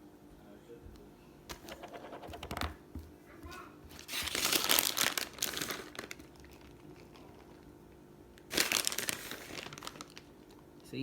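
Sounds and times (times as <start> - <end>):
plastic packaging crinkling: 4.0 - 7.7, 8.4 - 10.6.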